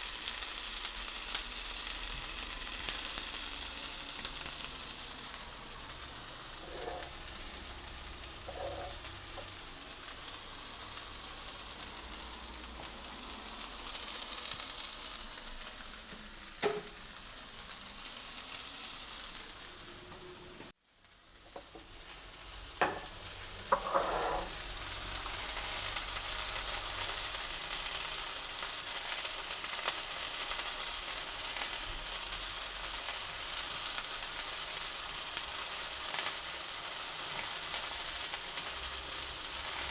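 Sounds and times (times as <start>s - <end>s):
food sizzling in a pan: 0.0s - 39.9s
utensil knocking against pan: 22.8s - 23.2s.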